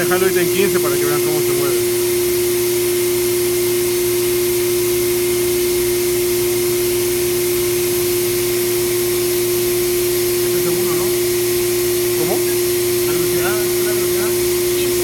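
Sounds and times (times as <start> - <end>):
electric machinery drone: 0.0 - 15.0.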